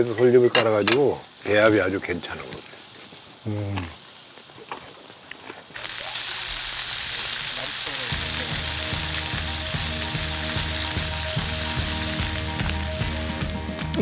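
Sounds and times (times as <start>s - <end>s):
pork sizzling on a grill: 0.0s - 14.0s
background music with beat: 8.1s - 14.0s.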